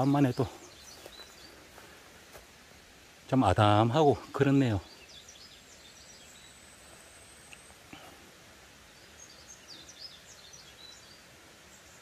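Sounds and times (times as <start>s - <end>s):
bird chirps: 0.0s - 1.8s, 4.4s - 8.1s, 8.8s - 12.0s.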